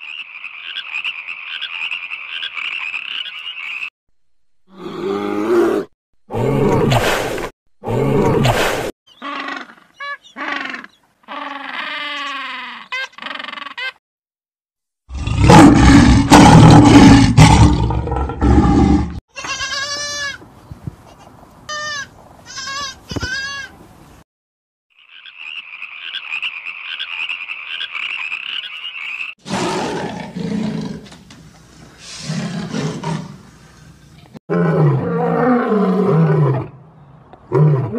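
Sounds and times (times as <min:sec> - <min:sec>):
repeated high animal calls: 0:09.1 - 0:14.0, 0:25.0 - 0:29.6.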